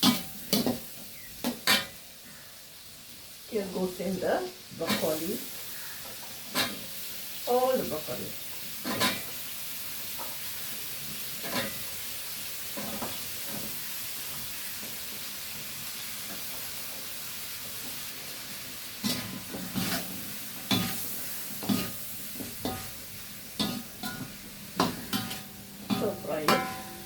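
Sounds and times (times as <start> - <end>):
vegetables sizzling in a pan: 0.0 - 27.0
utensil scraping and knocking pan: 23.6 - 27.0.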